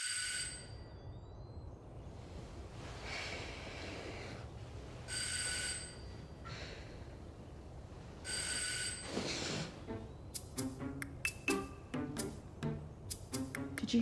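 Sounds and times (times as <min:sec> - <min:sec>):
low steady hum: 0:00.0 - 0:14.0
electronic doorbell ringing: 0:05.1 - 0:06.1, 0:08.2 - 0:09.2.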